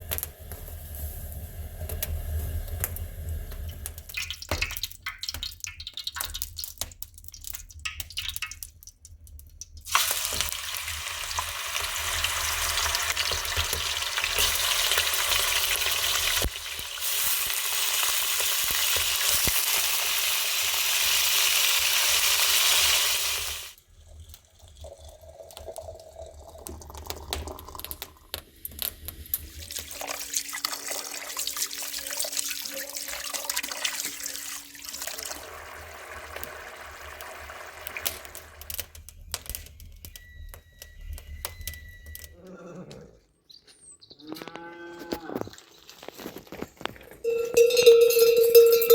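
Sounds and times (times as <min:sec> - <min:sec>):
wood fire crackling and popping: 0:00.0 - 0:24.4, 0:25.2 - 0:30.6, 0:35.2 - 0:42.3, 0:45.7 - 0:47.7.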